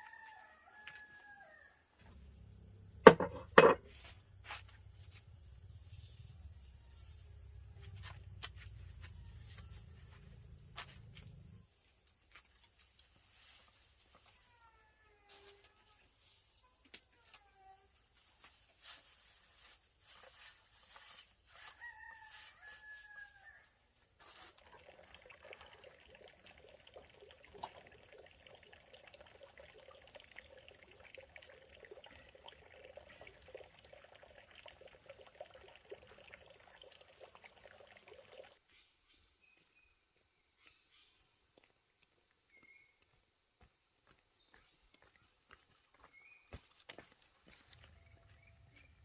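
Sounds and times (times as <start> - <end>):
rooster crowing: 0.0 - 1.9, 21.6 - 23.7.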